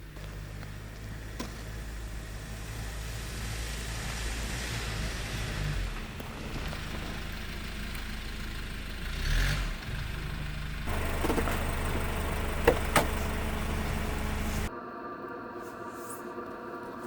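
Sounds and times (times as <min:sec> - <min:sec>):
vehicle engine humming: 0:00.0 - 0:14.7.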